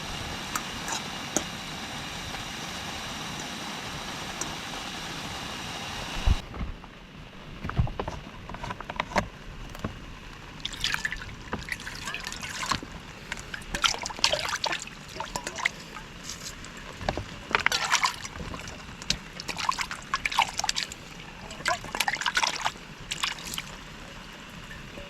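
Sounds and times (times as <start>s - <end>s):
water trickling and splashing: 10.5s - 24.9s.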